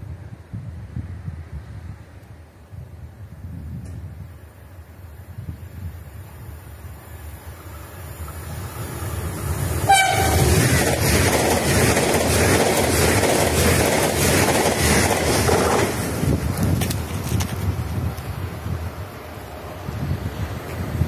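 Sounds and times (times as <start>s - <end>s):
train rushing past: 6.1s - 21.0s
train horn blast: 9.8s - 10.6s.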